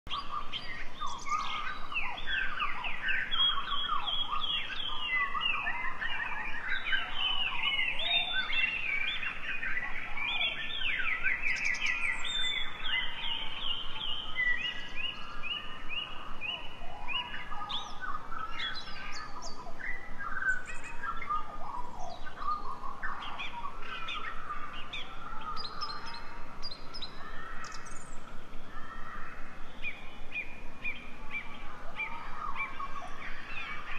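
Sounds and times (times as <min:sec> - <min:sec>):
birds singing and chirping: 0:00.1 - 0:33.9.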